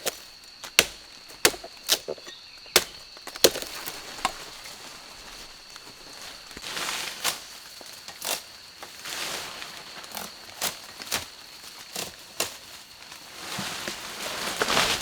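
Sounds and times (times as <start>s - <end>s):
wood chopping cracks: 0.0s - 4.8s
rustling: 0.0s - 11.3s.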